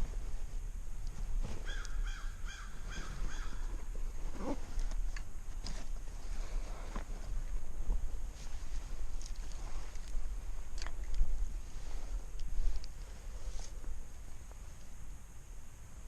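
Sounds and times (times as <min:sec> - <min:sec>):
steady low rumble: 0:00.0 - 0:16.0
crow cawing: 0:01.7 - 0:03.6.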